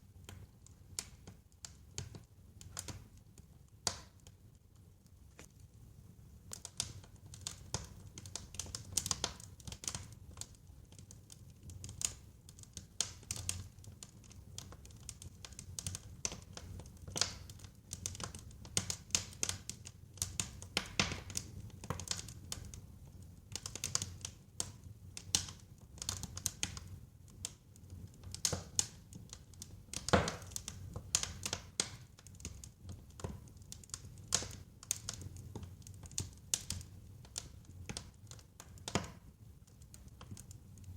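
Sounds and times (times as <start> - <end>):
wood fire crackling and popping: 0.1 - 40.9.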